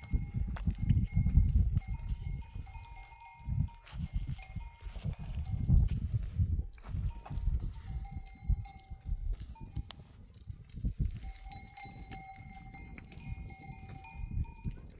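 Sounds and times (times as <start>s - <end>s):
goat bells ringing: 0.0s - 14.9s.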